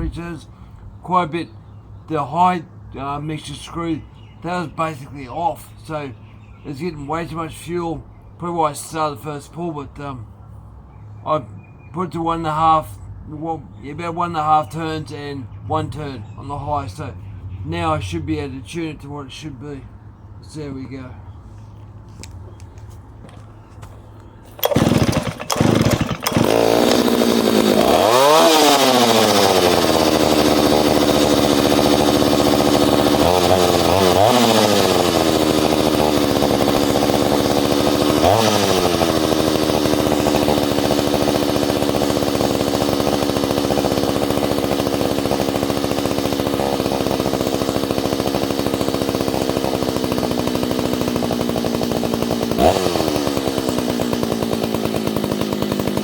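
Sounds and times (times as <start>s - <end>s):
chainsaw running and revving: 24.5s - 56.0s.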